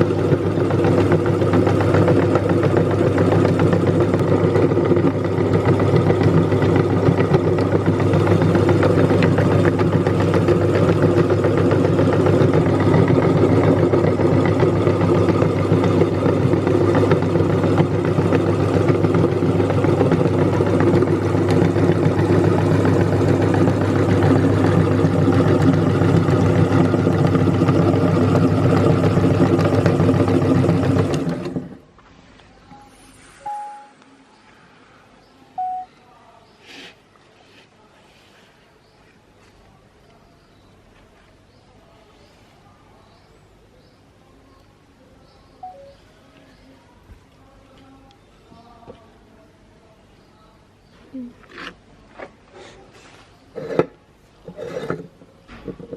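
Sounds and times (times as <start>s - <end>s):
meat grinder motor running: 0.0s - 31.8s.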